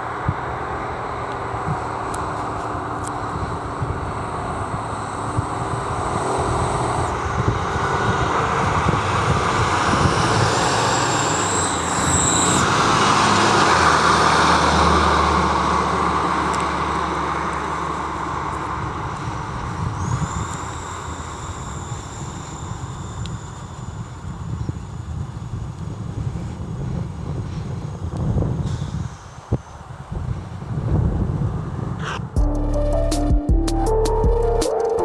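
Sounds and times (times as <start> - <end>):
emergency vehicle driving past: 0.0 - 24.3.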